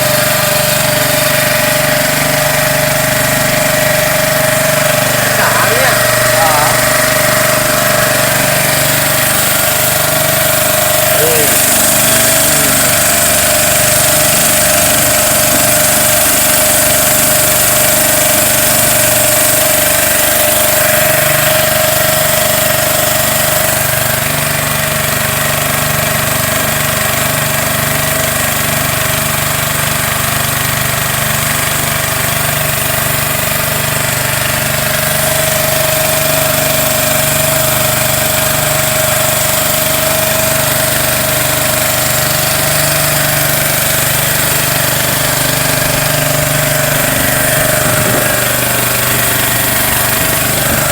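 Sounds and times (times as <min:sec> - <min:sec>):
small motorboat engine droning: 0:00.0 - 0:50.9.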